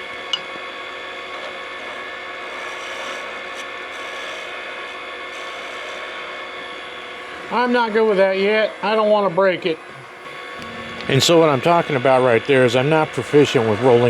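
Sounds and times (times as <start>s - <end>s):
wood lathe whine: 0.0s - 14.0s
turning tool scraping wood: 1.4s - 7.5s.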